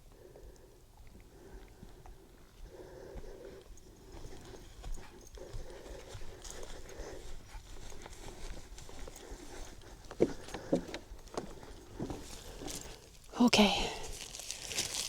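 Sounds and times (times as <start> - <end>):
footsteps: 3.0 - 13.1, 13.9 - 15.0.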